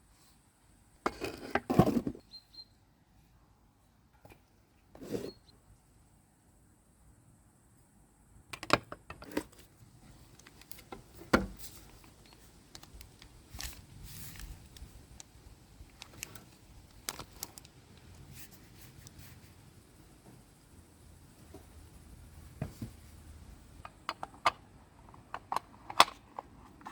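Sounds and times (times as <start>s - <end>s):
packaging handling clicks and knocks: 15.9s - 18.2s, 23.8s - 26.9s.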